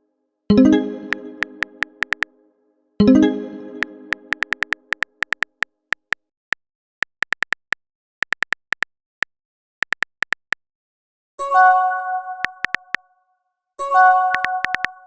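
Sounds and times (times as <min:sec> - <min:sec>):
phone keyboard typing ticks: 0:01.0 - 0:02.3, 0:03.8 - 0:06.2, 0:07.0 - 0:10.6, 0:12.4 - 0:13.0, 0:14.3 - 0:15.0.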